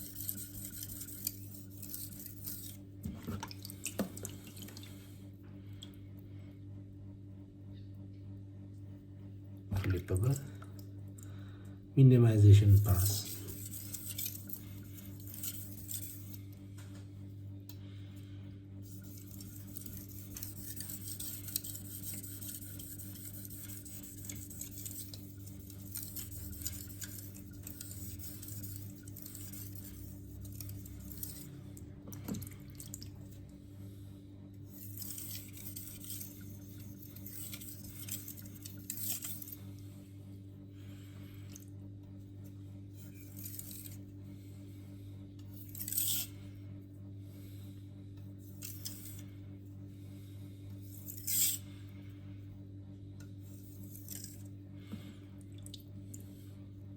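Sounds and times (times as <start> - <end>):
knife scraping on whetstone: 0.0 - 2.8, 13.0 - 16.4, 18.9 - 31.5, 34.7 - 39.6, 43.0 - 44.0, 45.5 - 46.4, 48.5 - 49.2, 50.9 - 51.7, 53.6 - 54.5
steady low hum: 0.0 - 56.9.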